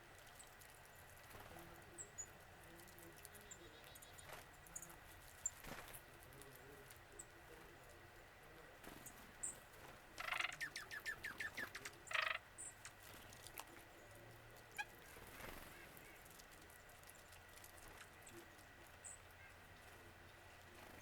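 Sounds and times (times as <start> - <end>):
harsh bird calls: 10.2 - 13.0.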